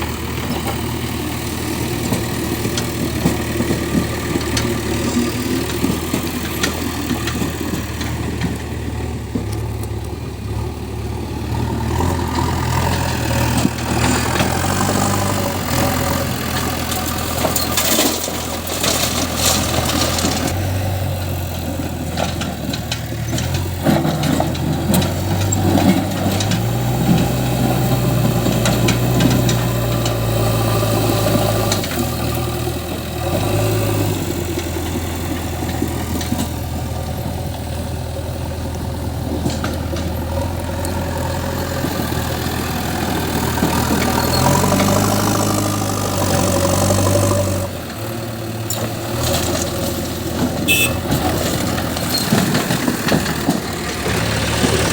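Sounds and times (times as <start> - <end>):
diesel engine revving: 0.0 - 54.9
clattering: 12.2 - 20.6, 48.7 - 54.9.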